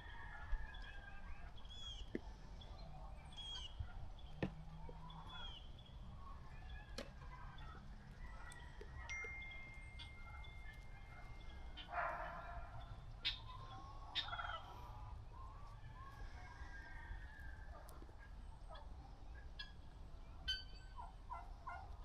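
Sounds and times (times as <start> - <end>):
turkey gobbling: 10.0 - 22.0.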